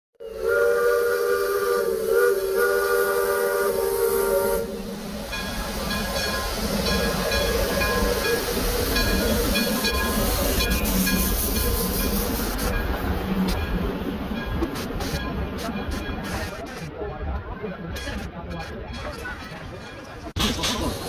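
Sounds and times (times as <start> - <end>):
steam locomotive whistle: 0.2 - 12.2
steam hissing: 0.2 - 14.0, 20.4 - 21.0
train rumbling: 0.2 - 21.0.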